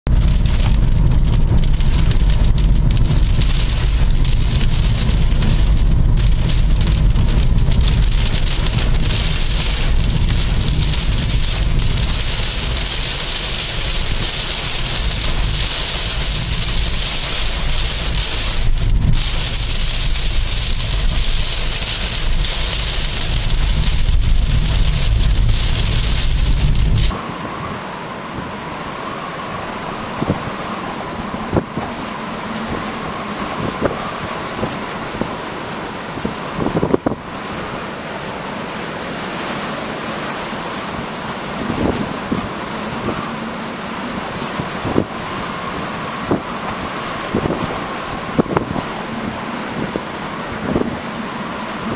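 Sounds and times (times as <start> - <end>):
heavy low rumble: 0.1 - 35.3
steady rain: 0.1 - 51.9.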